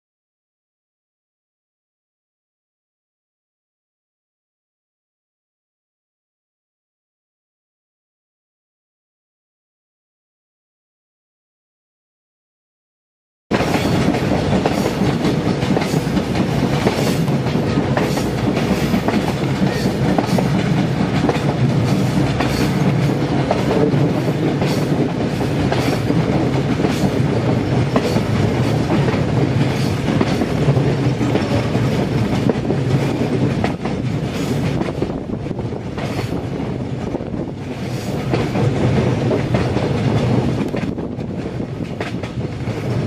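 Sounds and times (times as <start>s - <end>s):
train coaches rumbling: 13.5s - 43.0s
wheels clicking over rail joints: 37.0s - 43.0s.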